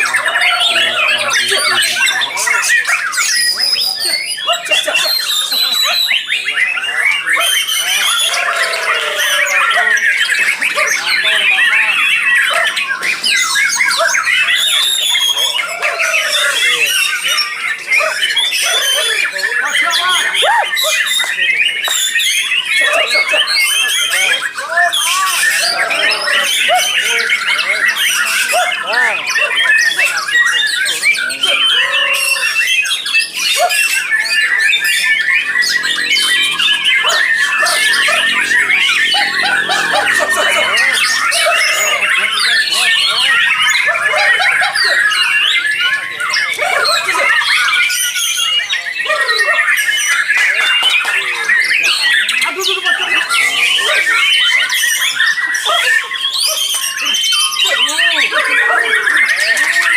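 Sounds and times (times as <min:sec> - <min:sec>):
birds singing whistles and chirps: 0:00.0 - 0:59.9.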